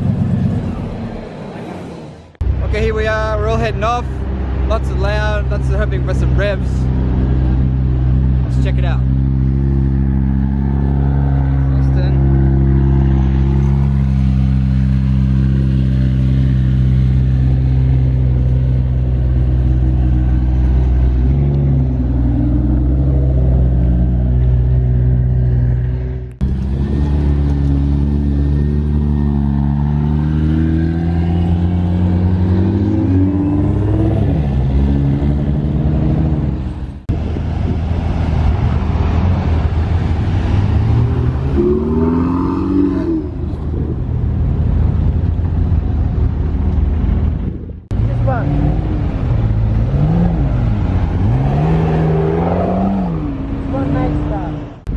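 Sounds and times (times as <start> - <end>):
car engines idling loudly: 0.0 - 10.2
cars pulling away: 0.0 - 54.9
engines revving: 0.0 - 54.9.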